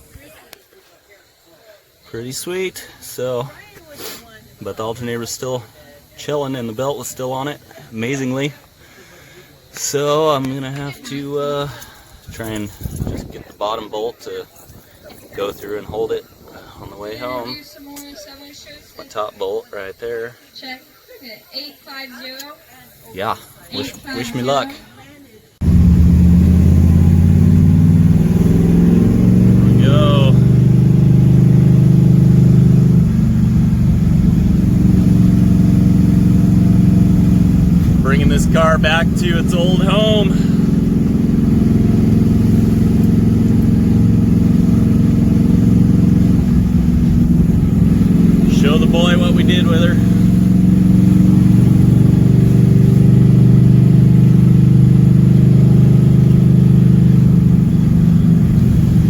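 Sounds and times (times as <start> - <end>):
car engine running: 25.6 - 59.0.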